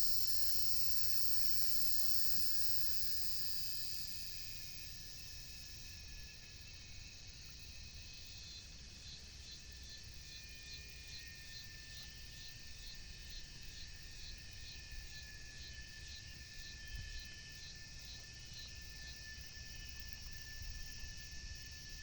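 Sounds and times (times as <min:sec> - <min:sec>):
insect short chirps: 0:00.0 - 0:06.1
insects buzzing and trilling: 0:00.0 - 0:22.0.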